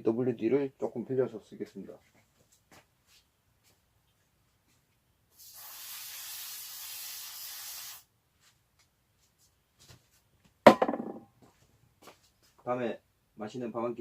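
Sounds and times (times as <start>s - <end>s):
aerosol can spraying: 5.4s - 8.1s.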